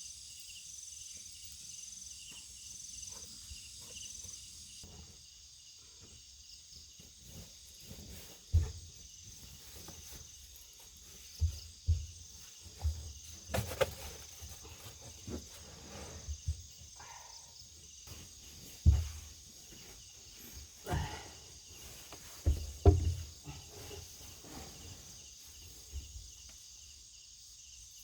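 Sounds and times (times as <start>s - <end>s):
crickets and insects trilling: 0.0s - 28.0s
low thumps and knocks: 11.0s - 15.5s, 18.1s - 24.1s.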